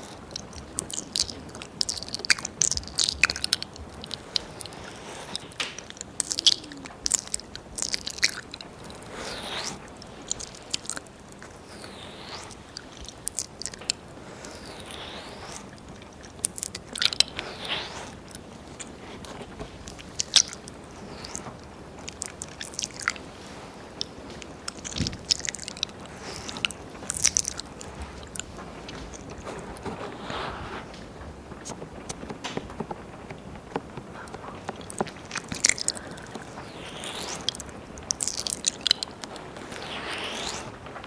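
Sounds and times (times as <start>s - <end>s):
tongue clicks: 0.0s - 18.9s, 34.2s - 40.6s
wet mouth sounds and licking: 0.0s - 30.2s, 34.2s - 40.8s
smacks and slurps: 0.0s - 31.1s, 34.1s - 40.8s.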